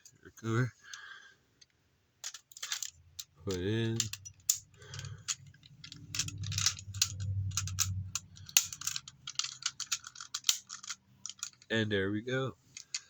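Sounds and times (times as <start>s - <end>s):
plastic toy parts clicking: 1.6s - 11.7s, 12.7s - 13.0s.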